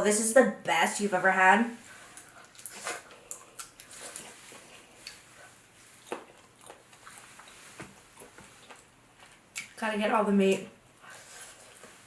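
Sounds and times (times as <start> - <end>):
wet chewing: 2.1 - 9.8.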